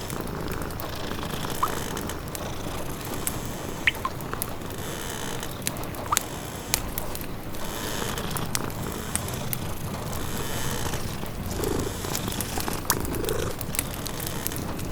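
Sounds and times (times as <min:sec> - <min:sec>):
cat purring: 0:00.0 - 0:04.8, 0:08.3 - 0:14.9
wood fire crackling: 0:00.0 - 0:14.9.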